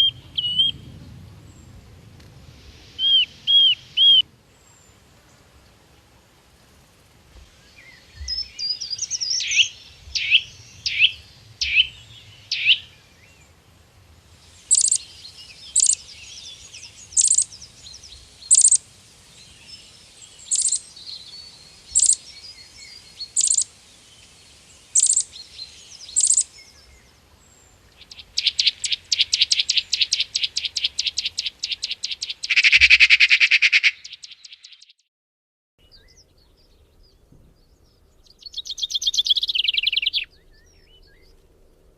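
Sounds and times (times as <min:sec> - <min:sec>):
songbird calling: 0:00.0 - 0:01.9, 0:02.6 - 0:05.8, 0:07.3 - 0:13.6, 0:14.4 - 0:35.0, 0:35.8 - 0:41.9.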